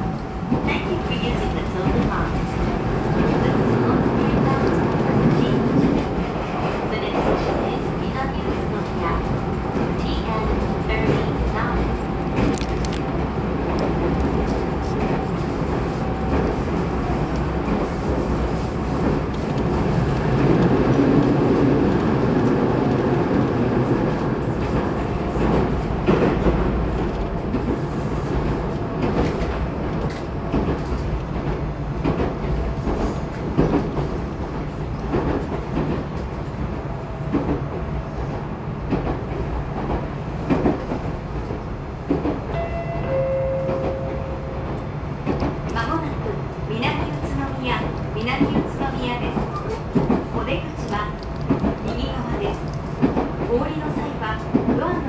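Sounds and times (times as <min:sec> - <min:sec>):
train running rumble: 0:00.0 - 0:55.0.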